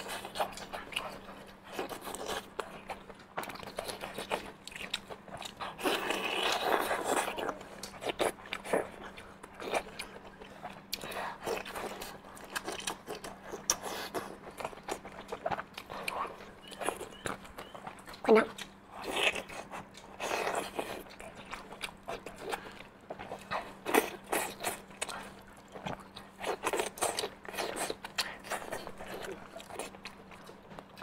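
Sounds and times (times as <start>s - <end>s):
chewing sausage: 0.0s - 31.0s.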